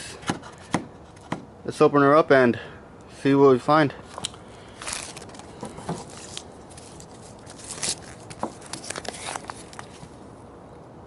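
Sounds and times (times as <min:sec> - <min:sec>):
packaging rustling and tearing: 0:04.7 - 0:10.1.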